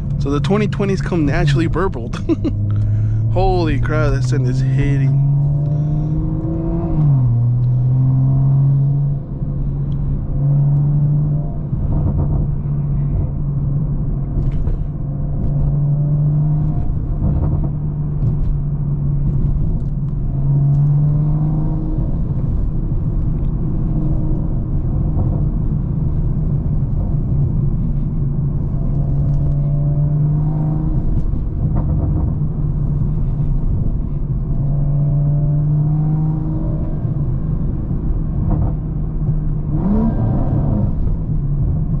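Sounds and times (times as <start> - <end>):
car engine cruising drone: 0.0 - 42.0.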